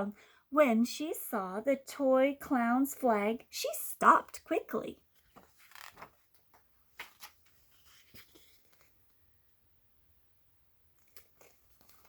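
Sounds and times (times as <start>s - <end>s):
faint soft clicks and rustles: 5.1s - 9.2s, 10.9s - 12.0s.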